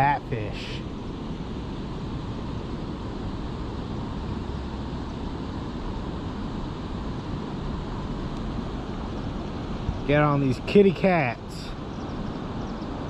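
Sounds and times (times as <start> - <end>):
rushing river current: 0.0 - 13.0.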